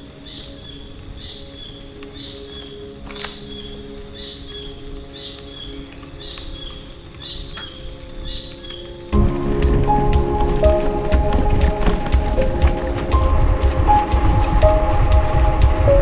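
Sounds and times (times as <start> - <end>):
outdoor ambience: 0.0 - 16.0
bird high chirp: 0.2 - 10.8
rolling noise: 4.8 - 16.0.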